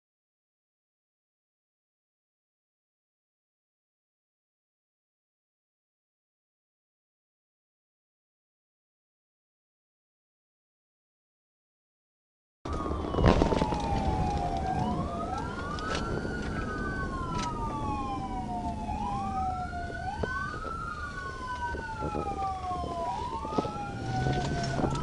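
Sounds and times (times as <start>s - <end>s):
police siren wailing: 12.7s - 25.0s
road and engine noise: 12.7s - 25.0s.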